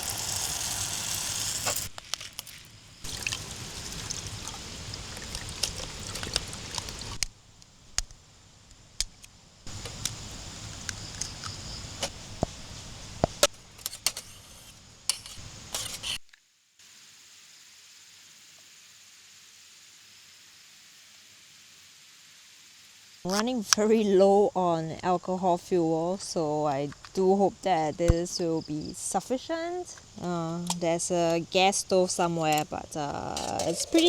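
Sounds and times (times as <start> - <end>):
liquid pouring: 0.0 - 7.3, 33.4 - 34.0
utensils clinking against cookware: 13.6 - 16.2, 32.4 - 34.0.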